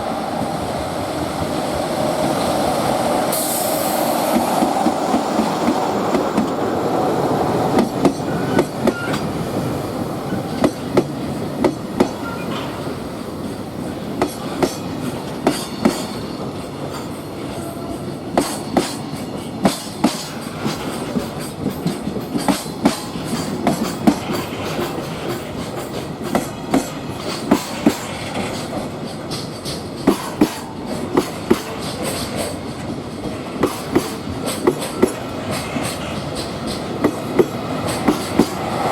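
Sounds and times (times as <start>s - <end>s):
freight train rumble: 0.0s - 38.9s
wheels clacking over rail joints: 4.3s - 38.9s.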